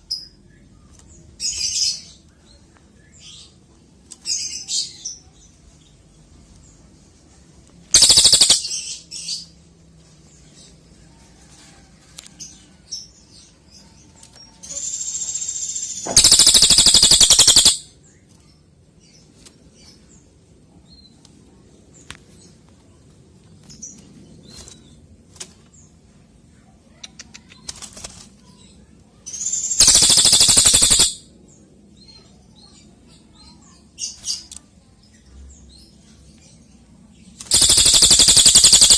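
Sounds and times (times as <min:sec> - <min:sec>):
short bird chirps: 0:08.0 - 0:08.7, 0:29.4 - 0:31.2
songbird trilling: 0:08.0 - 0:08.9, 0:14.7 - 0:17.9, 0:29.3 - 0:31.2, 0:37.5 - 0:38.9.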